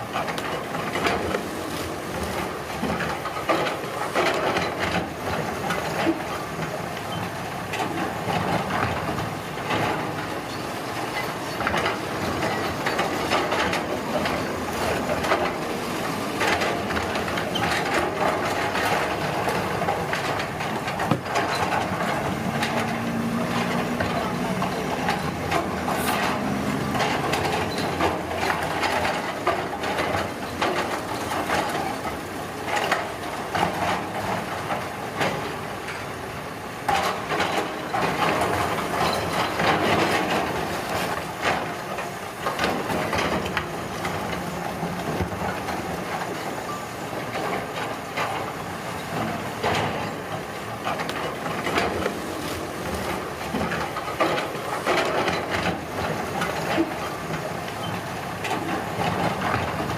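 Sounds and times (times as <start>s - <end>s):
construction machinery engine: 0.0s - 59.9s
knocks and scraping: 11.6s - 31.7s.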